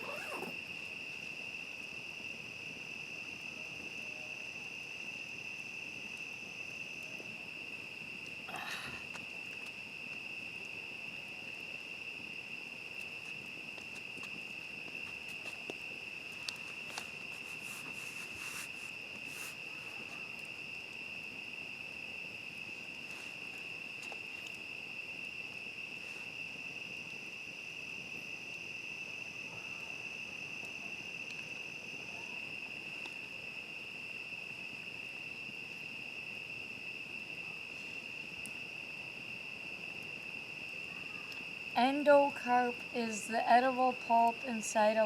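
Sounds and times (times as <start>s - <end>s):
high-pitched insect: 0.0s - 2.2s
campfire crackling: 0.0s - 45.0s
crickets trilling: 0.0s - 45.0s.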